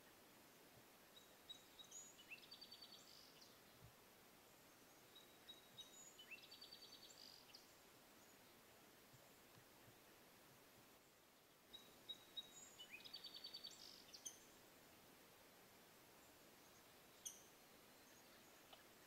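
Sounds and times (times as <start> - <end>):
outdoor background hiss: 0.0 - 19.0
songbird singing with trill: 1.1 - 3.9, 4.6 - 8.6, 11.2 - 14.6, 16.6 - 18.7.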